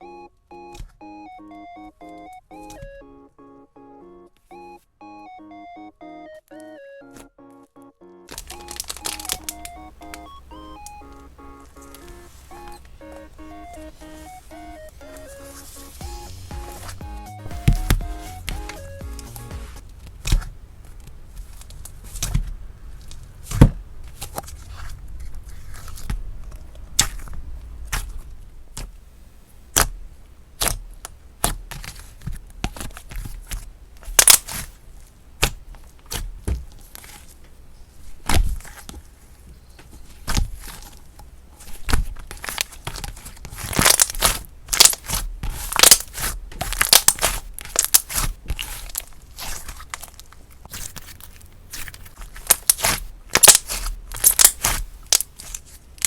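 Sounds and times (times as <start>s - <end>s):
slime crackly tearing: 42.3s - 55.7s.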